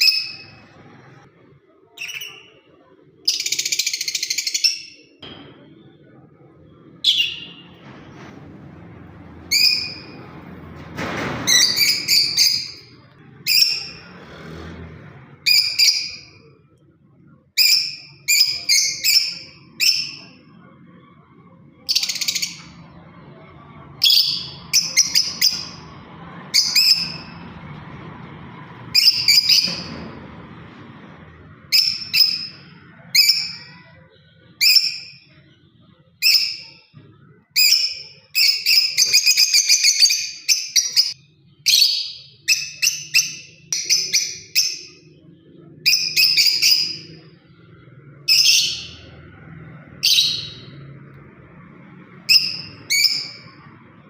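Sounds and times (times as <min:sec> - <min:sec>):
lovebird chirping: 0:01.9 - 0:05.4, 0:07.1 - 0:07.7.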